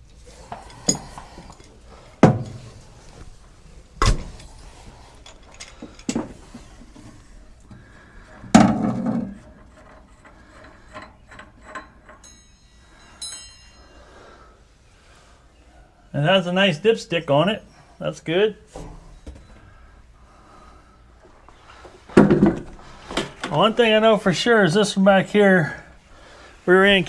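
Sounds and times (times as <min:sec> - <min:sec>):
metal knocks and clunks: 0:00.5 - 0:12.7, 0:21.8 - 0:23.7.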